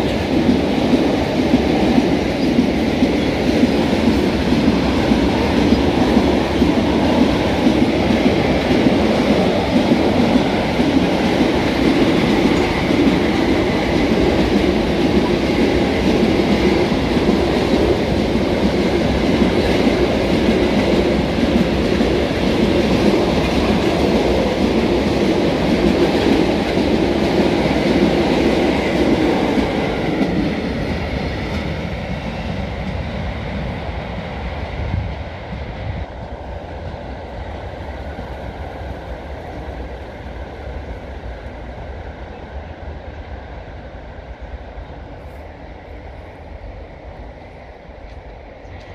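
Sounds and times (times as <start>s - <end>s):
train wheels rumbling on rails: 0.0s - 48.9s.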